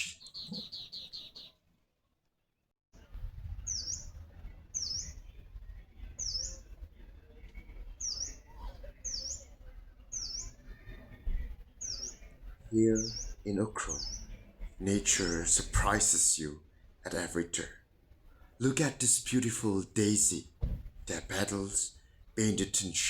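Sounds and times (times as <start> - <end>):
bird call: 0.0 - 1.6.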